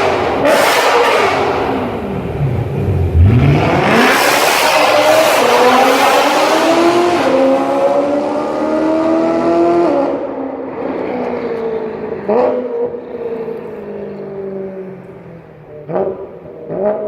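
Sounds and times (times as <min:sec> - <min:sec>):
car engine accelerating hard: 0:00.0 - 0:10.3.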